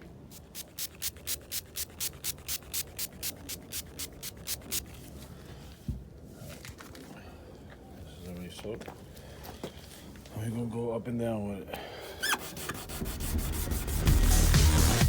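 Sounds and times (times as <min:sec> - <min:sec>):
hand wet-sanding strokes: 0:00.3 - 0:05.0, 0:12.2 - 0:14.9.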